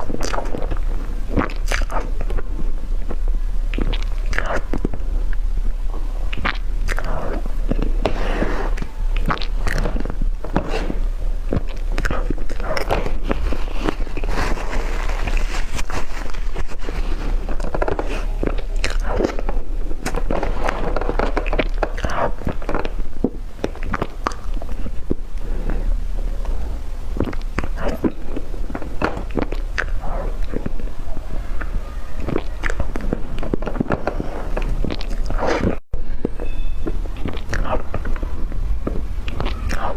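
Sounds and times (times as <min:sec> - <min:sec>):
crunchy chewing: 0:00.0 - 0:39.9
crisp cracks: 0:06.3 - 0:30.9.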